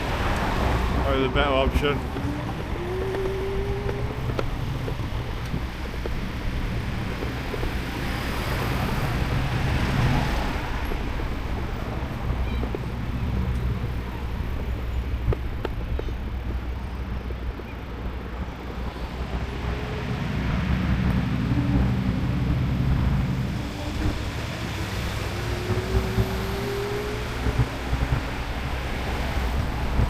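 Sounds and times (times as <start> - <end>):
vehicle engine passing: 0.0 - 12.4, 17.9 - 30.0
low traffic rumble: 0.0 - 30.0
engine pitch rising: 0.4 - 8.3, 17.9 - 29.7.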